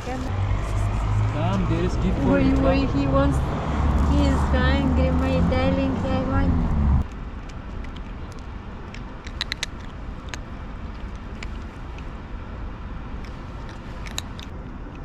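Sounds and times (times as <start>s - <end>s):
kitten chewing with crunching clicks: 7.0s - 12.2s, 13.2s - 15.0s.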